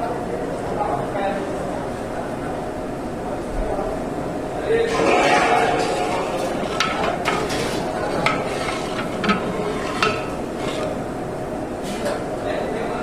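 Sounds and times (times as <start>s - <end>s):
metal ladle striking pot: 4.9s - 10.9s.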